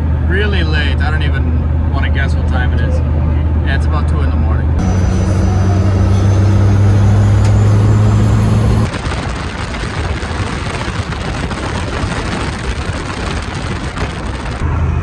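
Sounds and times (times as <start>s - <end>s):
vehicle engine droning: 4.8s - 8.9s.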